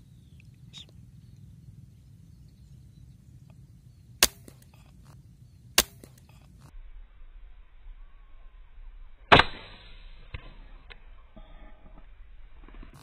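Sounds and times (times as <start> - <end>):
air rifle shots: 4.2 - 5.0, 5.7 - 6.4, 9.3 - 10.4.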